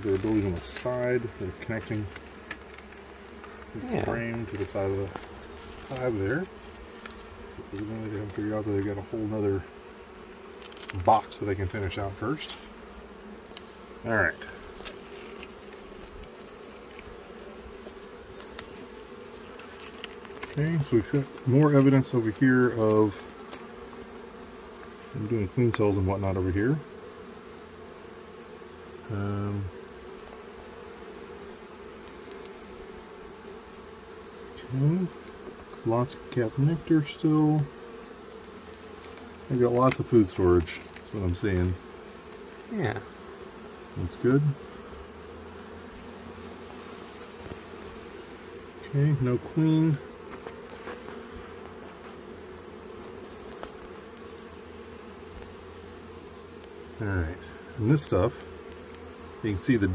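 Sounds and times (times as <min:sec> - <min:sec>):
honeybees buzzing: 0:00.0 - 0:59.9.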